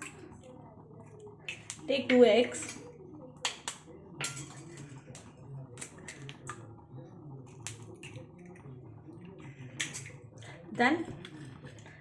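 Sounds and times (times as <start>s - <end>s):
eggs cracked against a bowl: 1.4s - 1.9s, 2.5s - 6.7s, 7.5s - 8.7s, 9.7s - 10.2s.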